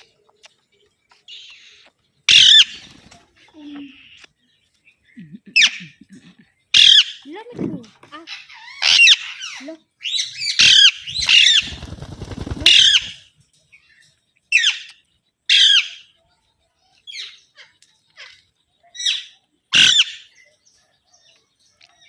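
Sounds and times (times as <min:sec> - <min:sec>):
parrots squawking harshly: 0:02.3 - 0:02.8, 0:06.7 - 0:07.2, 0:08.3 - 0:11.7, 0:19.8 - 0:20.3.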